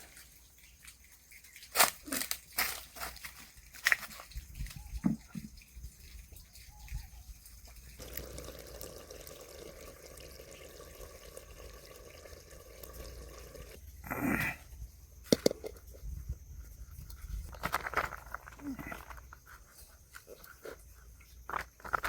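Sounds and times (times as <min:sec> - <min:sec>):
liquid pouring: 0:03.5 - 0:13.9.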